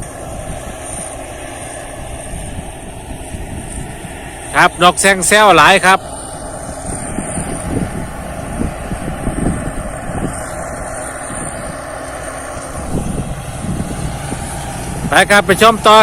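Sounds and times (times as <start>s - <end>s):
combine harvester engine droning: 0.0s - 16.0s.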